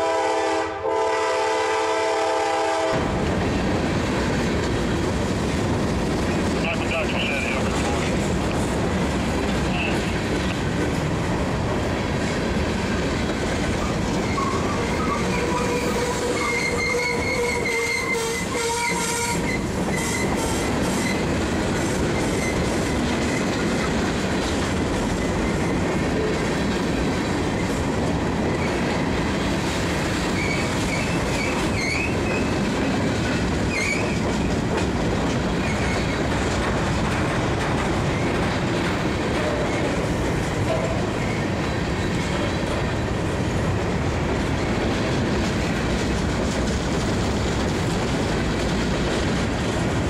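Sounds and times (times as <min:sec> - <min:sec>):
freight train wheels rumbling: 0:00.0 - 0:50.0
wheel squeals: 0:14.2 - 0:21.2, 0:30.3 - 0:32.5, 0:33.7 - 0:34.2.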